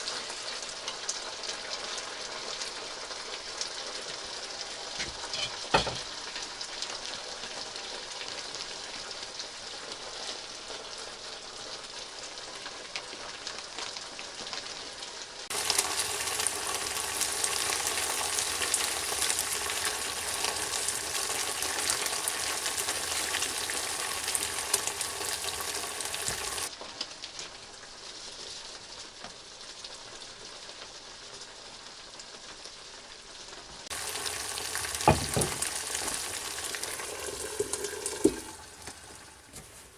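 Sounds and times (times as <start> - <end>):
food sizzling in a pan: 0.0 - 39.9
sharp knock: 35.1 - 35.7.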